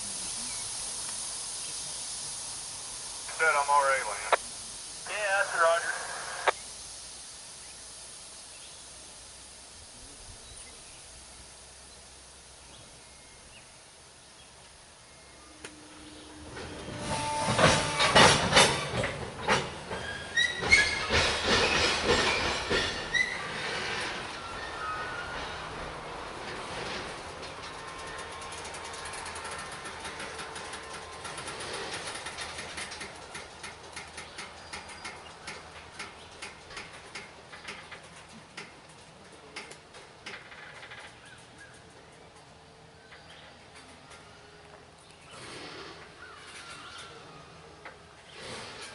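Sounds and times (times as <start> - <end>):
diesel locomotive rumble: 0.0 - 48.9
wheels and brakes squealing: 15.4 - 33.3
train couplers clanking: 15.5 - 44.4
freight car wheels clicking: 26.4 - 42.7.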